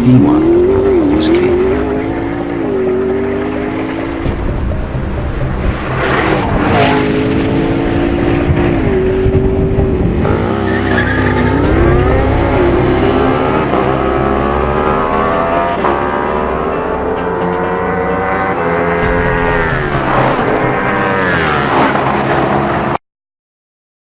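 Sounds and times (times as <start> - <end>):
car engine running hard: 0.0 - 23.0.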